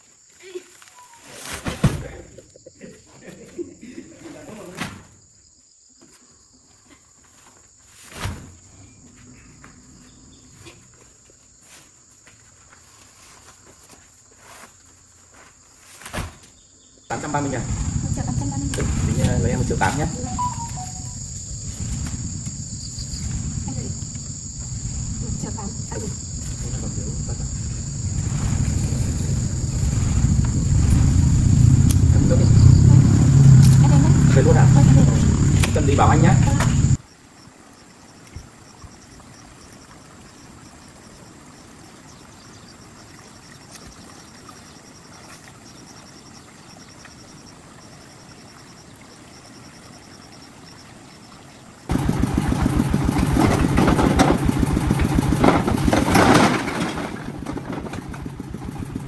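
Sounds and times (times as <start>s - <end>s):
engine rumbling: 17.1s - 37.0s, 51.9s - 59.0s
insect trilling: 17.1s - 37.0s.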